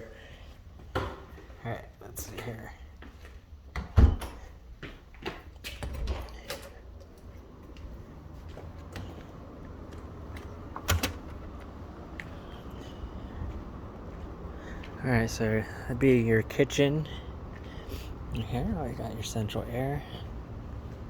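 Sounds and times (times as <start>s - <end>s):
door clicks and rattles: 5.7s - 11.8s.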